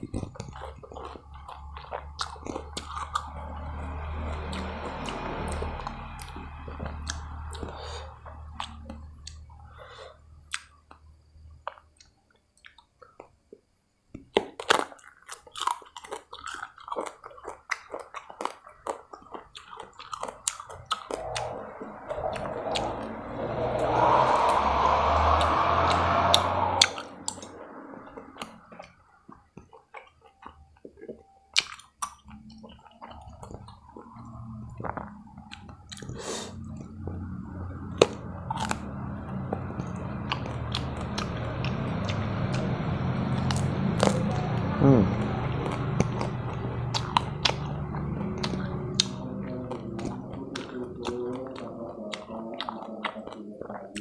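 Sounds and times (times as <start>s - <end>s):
crisp chewing and crunching: 0.0s - 3.3s, 14.1s - 21.5s, 43.4s - 44.2s, 45.2s - 54.0s.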